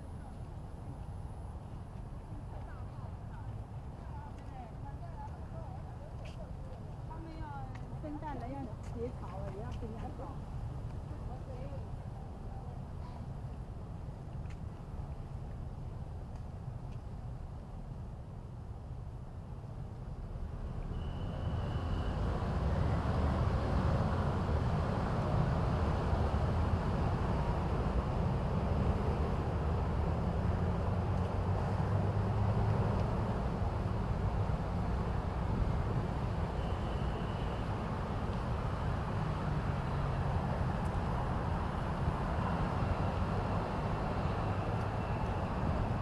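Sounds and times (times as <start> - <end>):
passing vehicle rumble: 20.4 - 46.0.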